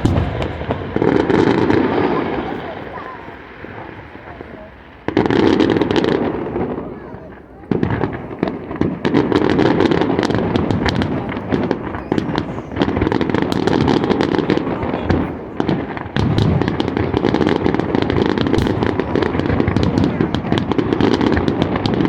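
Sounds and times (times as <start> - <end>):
fireworks bursting and crackling: 0.0 - 22.0.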